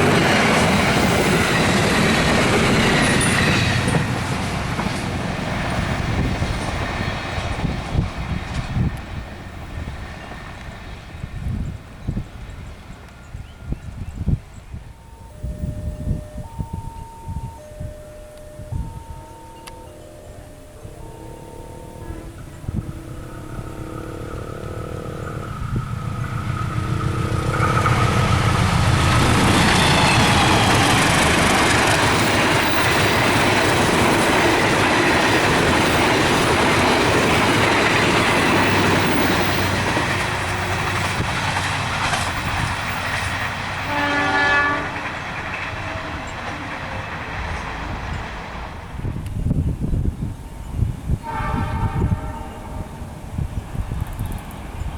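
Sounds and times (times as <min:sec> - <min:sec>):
train rumble and wheel clatter: 0:00.0 - 0:54.9
train horn: 0:18.6 - 0:41.3, 0:43.8 - 0:46.8, 0:51.1 - 0:53.5.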